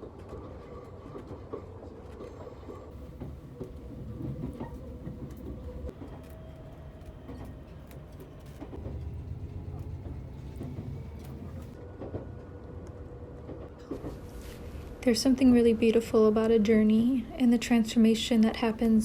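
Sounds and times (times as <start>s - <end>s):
train rumbling: 0.4s - 16.5s
faint whining tones: 2.9s - 11.8s.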